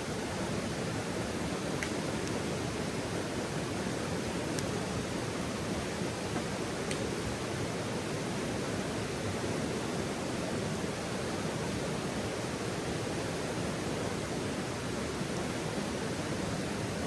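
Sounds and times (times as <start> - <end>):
steady rushing hiss: 0.0 - 17.0.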